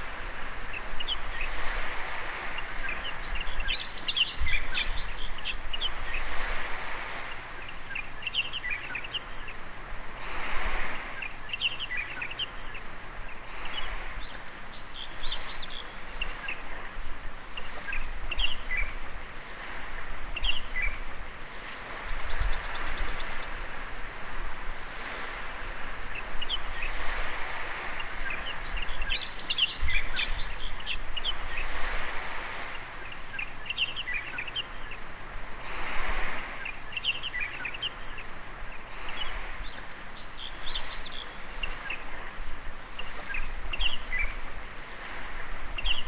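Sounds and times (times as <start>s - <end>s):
small birds chirping: 0.0s - 9.8s, 10.8s - 24.0s, 24.9s - 35.2s, 36.0s - 46.0s
waves washing on shore: 0.0s - 46.0s.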